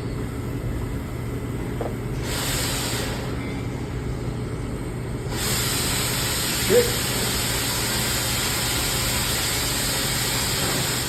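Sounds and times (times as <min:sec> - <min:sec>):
gas torch hissing: 0:01.8 - 0:03.4, 0:05.3 - 0:11.0.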